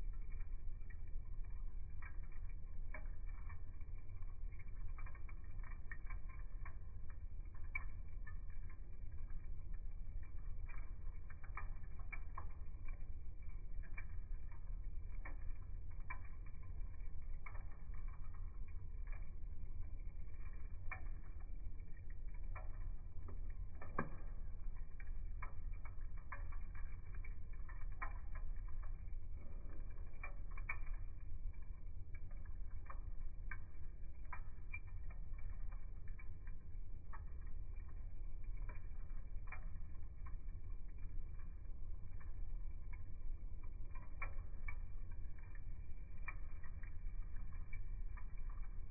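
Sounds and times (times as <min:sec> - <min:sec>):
low rumble of burning: 0:00.0 - 0:48.9
wood fire crackling and popping: 0:00.0 - 0:48.9.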